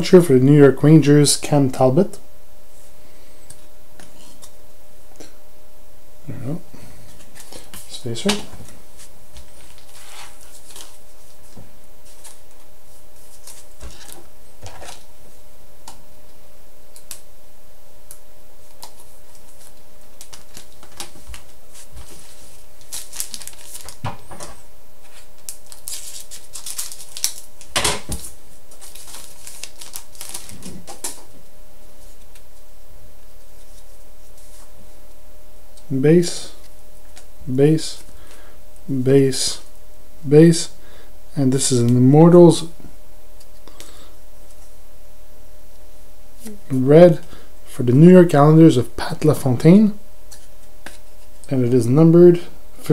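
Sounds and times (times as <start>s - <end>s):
faint steady hum: 0.0s - 52.9s
cards clicking and rustling: 18.7s - 24.4s, 25.2s - 31.2s.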